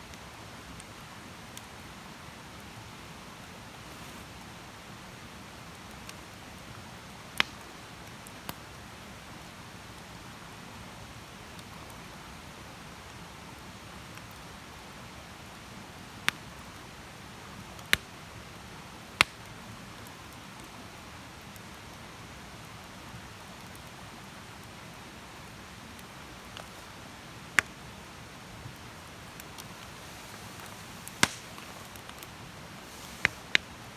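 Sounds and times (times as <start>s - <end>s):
campfire hissing: 0.1s - 33.9s
burning wood popping: 7.4s - 7.6s, 19.2s - 20.1s, 28.7s - 33.9s.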